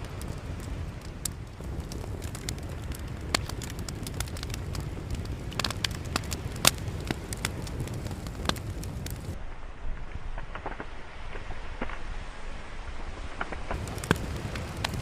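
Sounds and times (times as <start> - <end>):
wood fire crackling and popping: 0.0 - 9.4, 10.2 - 12.0, 13.2 - 15.0.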